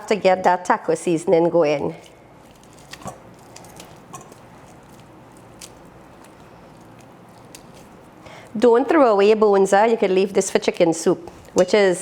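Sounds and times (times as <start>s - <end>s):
hands squishing meat: 2.0s - 9.1s.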